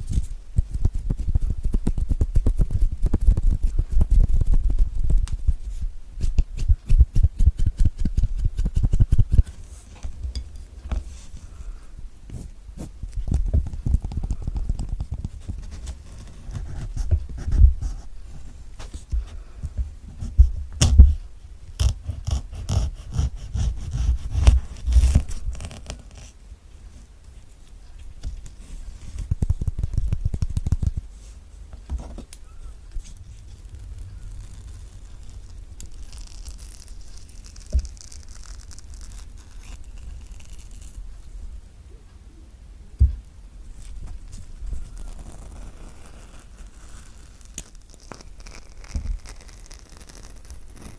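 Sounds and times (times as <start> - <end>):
taps and scratches on fruit skin: 0.1 - 9.5, 28.2 - 31.1.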